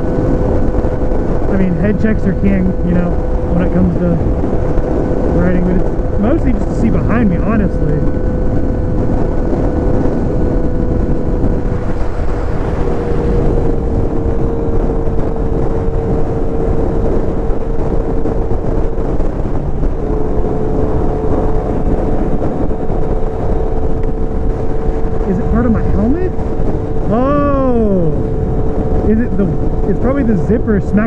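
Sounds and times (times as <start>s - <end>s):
motorcycle engine cruising: 0.0s - 31.0s
wind and road rush: 0.0s - 31.0s.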